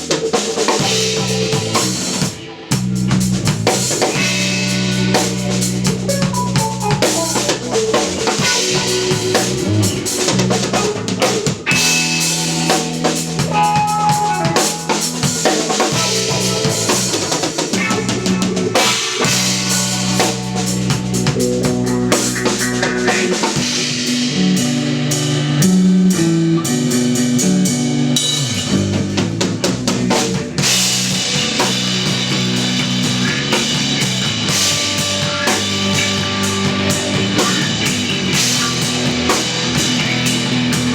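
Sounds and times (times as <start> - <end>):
drum kit: 0.0 - 40.9
electric bass: 0.0 - 40.9
electric guitar: 0.0 - 40.9.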